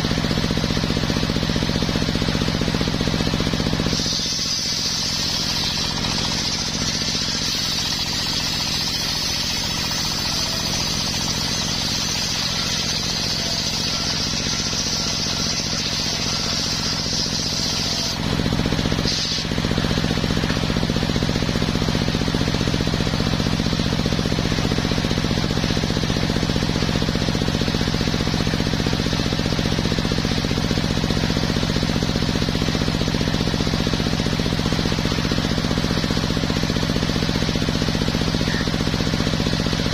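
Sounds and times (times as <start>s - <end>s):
circular sawmill running: 0.0s - 39.9s.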